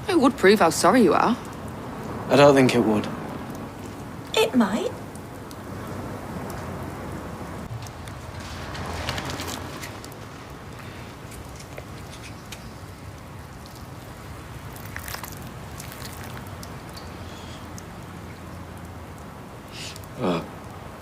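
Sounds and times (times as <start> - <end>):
steady rain: 0.0 - 21.0
light clicks and crackles: 7.7 - 14.1.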